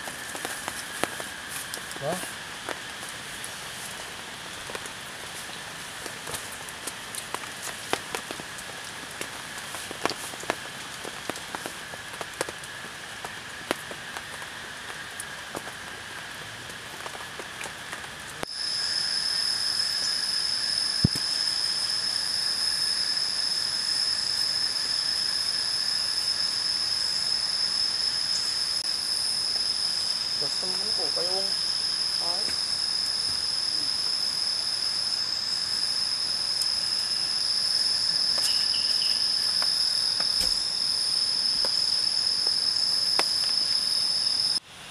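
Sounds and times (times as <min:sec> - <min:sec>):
rain falling: 0:00.0 - 0:26.5, 0:30.3 - 0:34.3, 0:35.2 - 0:44.6
high-pitched crickets chirping: 0:00.0 - 0:44.6
faint insect drone: 0:00.0 - 0:44.9.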